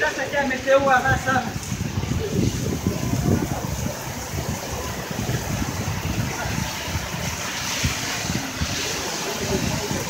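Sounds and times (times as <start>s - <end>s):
heavy rain on pavement: 0.0s - 10.0s
wind buffeting microphone: 0.0s - 10.0s.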